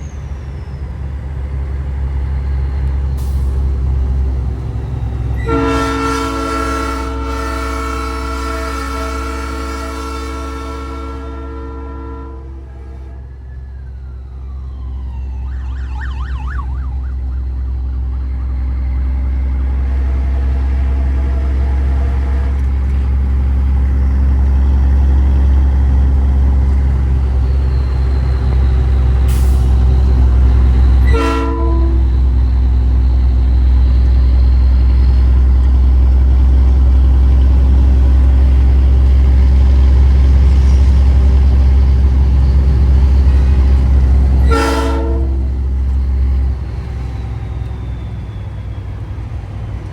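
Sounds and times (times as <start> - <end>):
heavy truck engine rumble: 0.0 - 49.9
truck horn tones: 5.4 - 13.4, 31.0 - 32.2, 44.4 - 45.7.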